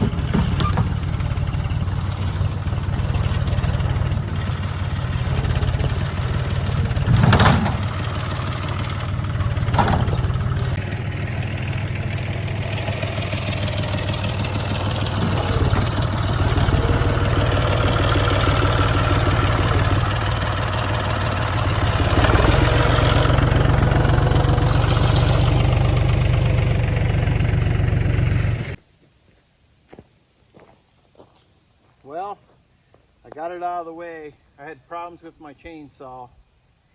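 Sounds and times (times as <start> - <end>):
tractor diesel engine running: 0.0 - 28.8.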